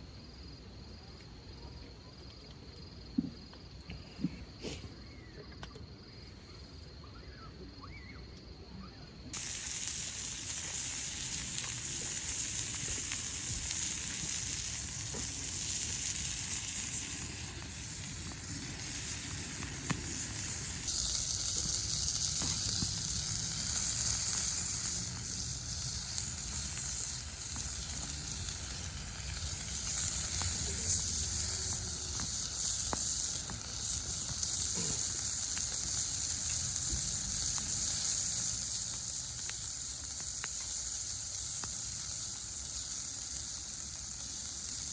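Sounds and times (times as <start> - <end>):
food sizzling in a frying pan: 9.3 - 44.9
insect trilling: 9.4 - 44.9.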